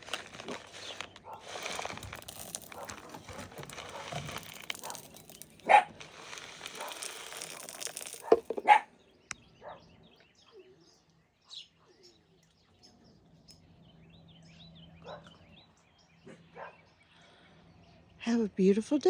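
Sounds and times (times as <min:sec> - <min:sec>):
rustling crunching noise: 0:00.0 - 0:08.8
faint bird chirps: 0:09.0 - 0:18.2.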